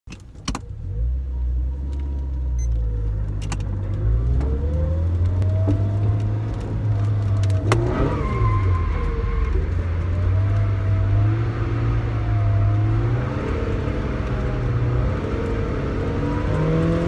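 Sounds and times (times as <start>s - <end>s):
car engine from inside cabin: 0.1s - 17.0s.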